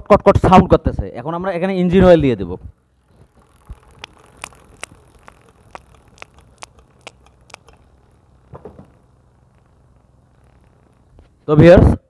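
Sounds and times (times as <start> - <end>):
motorcycle chain clicking: 3.1 - 11.0.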